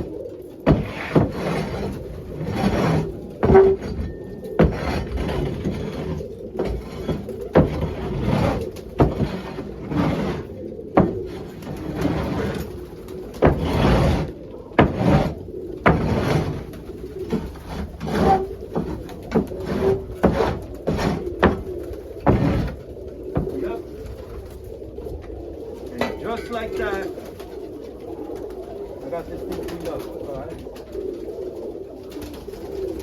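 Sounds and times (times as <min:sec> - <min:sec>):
pigeons cooing: 0:00.0 - 0:33.0
scraper scraping floor: 0:00.7 - 0:12.7, 0:13.4 - 0:21.6, 0:22.2 - 0:22.8.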